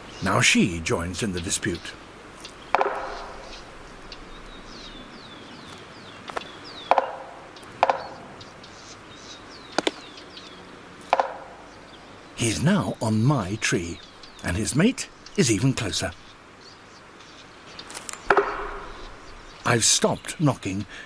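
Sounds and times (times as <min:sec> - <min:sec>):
woodpeckers calling: 0:00.0 - 0:21.0
knocks on tree trunk: 0:02.7 - 0:03.7, 0:06.9 - 0:08.2, 0:11.1 - 0:11.6, 0:18.3 - 0:19.2.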